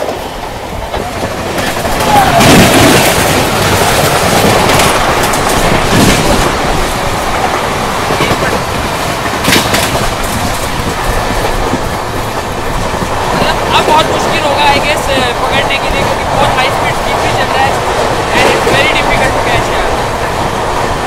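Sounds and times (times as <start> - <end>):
rush of wind and running noise: 0.0 - 21.0
wheels clacking over rail joints: 0.0 - 21.0.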